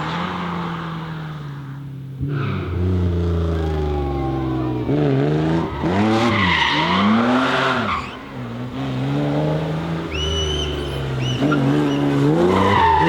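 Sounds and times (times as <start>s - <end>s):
car engine revving: 0.0s - 13.0s
tyres squealing: 10.1s - 13.0s.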